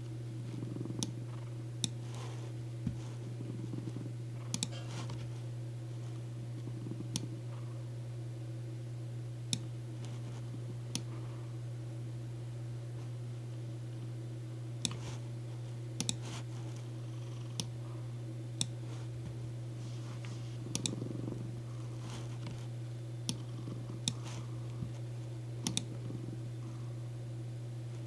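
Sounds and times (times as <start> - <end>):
cat purring: 0.4 - 7.9, 10.0 - 11.5, 16.2 - 18.2, 19.8 - 27.1
keyboard and mouse clicks: 4.5 - 4.8, 20.7 - 21.0, 25.6 - 25.9.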